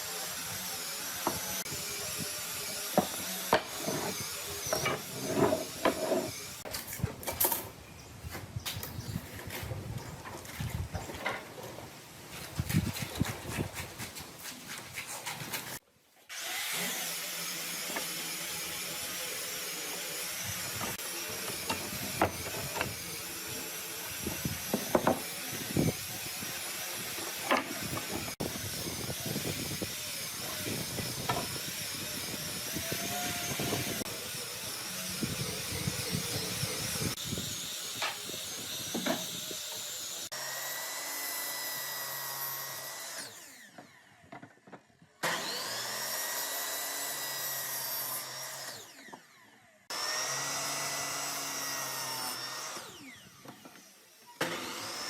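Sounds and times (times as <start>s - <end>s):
power tool motor whine: 16.3s - 44.3s, 45.2s - 55.0s.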